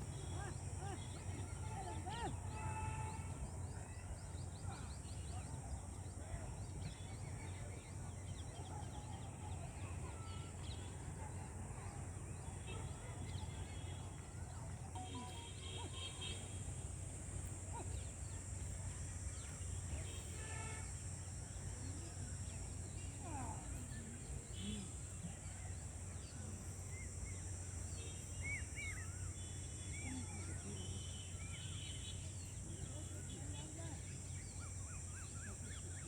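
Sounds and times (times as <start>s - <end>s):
high-pitched drone: 15.0s - 16.0s
bird chirps: 15.0s - 16.3s.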